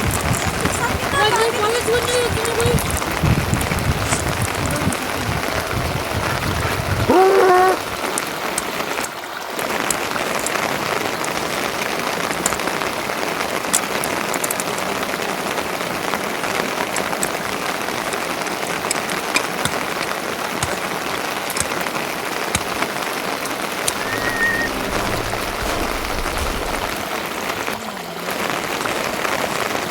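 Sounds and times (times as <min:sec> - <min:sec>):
steady rain: 0:00.0 - 0:29.9
short loud pitched call: 0:24.0 - 0:27.0.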